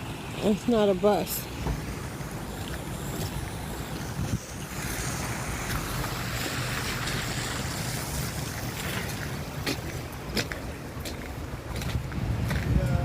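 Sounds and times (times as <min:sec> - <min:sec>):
tyre hiss on wet road: 0:01.1 - 0:11.2.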